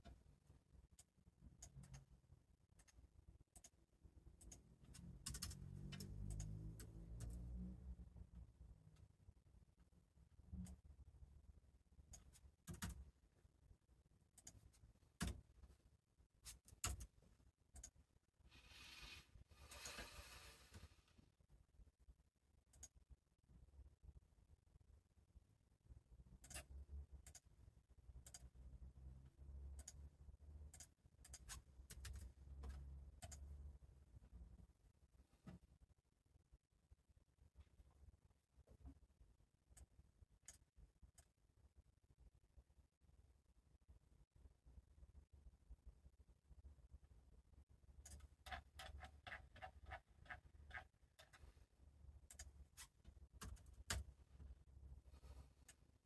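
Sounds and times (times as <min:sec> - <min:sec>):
keyboard typing: 0:04.4 - 0:07.4, 0:12.1 - 0:13.1, 0:26.4 - 0:27.5, 0:30.7 - 0:33.6, 0:48.0 - 0:51.5, 0:52.2 - 0:54.1.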